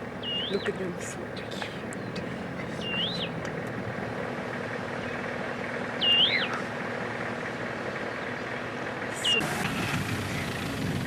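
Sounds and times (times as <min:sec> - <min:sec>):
steady low hum: 0:00.0 - 0:09.4
bird whistling call: 0:00.2 - 0:00.7, 0:02.8 - 0:03.4, 0:06.0 - 0:06.6, 0:09.2 - 0:09.4.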